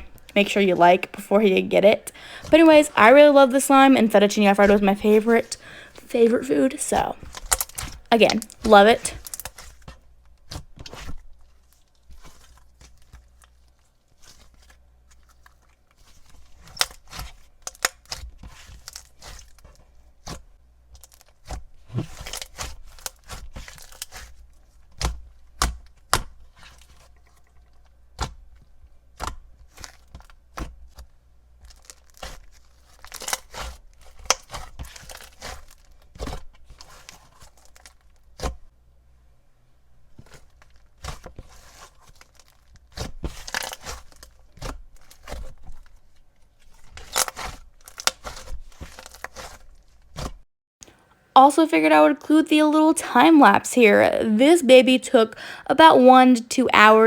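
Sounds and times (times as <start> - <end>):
slime squished by hand: 7.2 - 38.7, 40.1 - 50.4.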